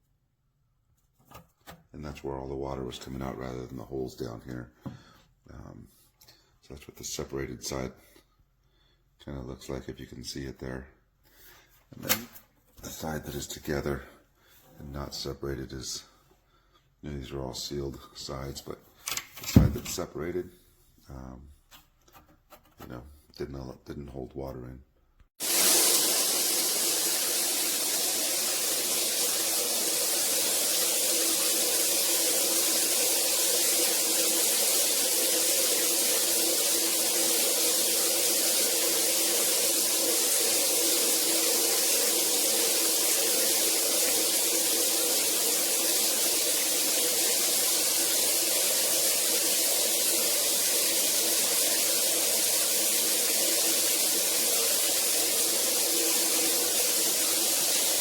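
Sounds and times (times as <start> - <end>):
shower spraying water: 25.4 - 58.0.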